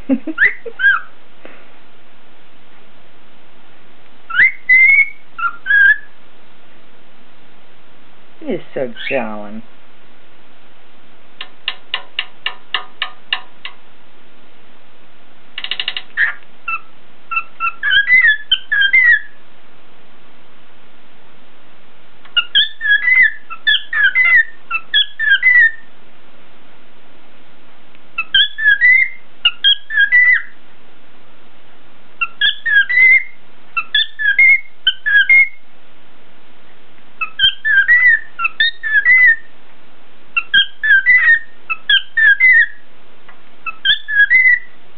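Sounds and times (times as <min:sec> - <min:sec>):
cockatiel whistling: 0:00.4 - 0:01.1, 0:04.3 - 0:06.1, 0:16.2 - 0:19.3, 0:22.4 - 0:25.8, 0:28.2 - 0:30.6, 0:32.2 - 0:35.6, 0:37.2 - 0:39.5, 0:40.4 - 0:42.8, 0:43.7 - 0:44.8.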